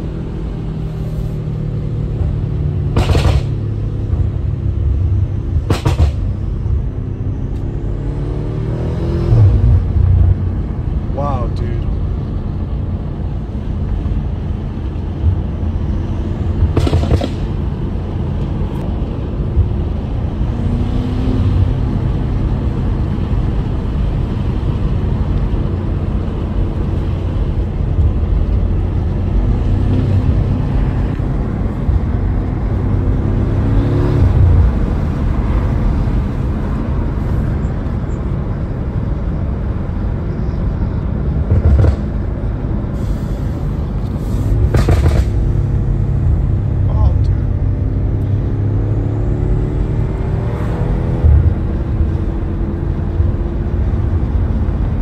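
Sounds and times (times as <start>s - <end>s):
car engine revving from inside cabin: 7.5s - 10.6s, 44.7s - 54.4s.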